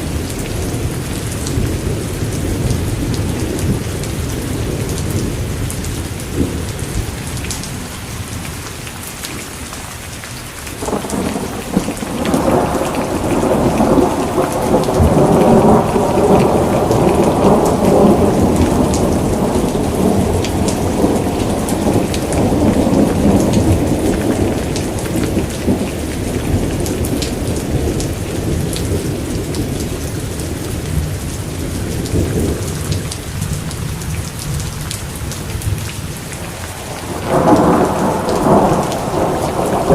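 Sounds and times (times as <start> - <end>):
steady rain: 0.0 - 39.9
thunder rolling: 10.8 - 30.0, 36.8 - 39.9.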